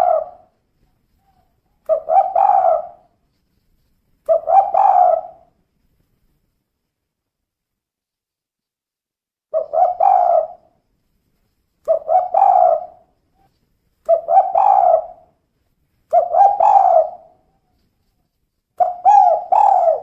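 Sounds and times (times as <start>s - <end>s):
dove cooing: 0.0s - 0.6s, 1.2s - 3.1s, 4.3s - 5.6s, 9.5s - 10.8s, 11.8s - 15.4s, 16.1s - 17.8s, 18.8s - 20.0s.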